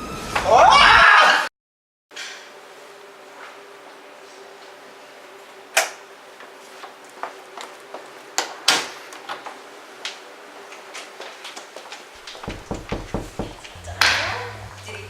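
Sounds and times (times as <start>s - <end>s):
sharp knocks and clicks: 12.2s - 14.2s.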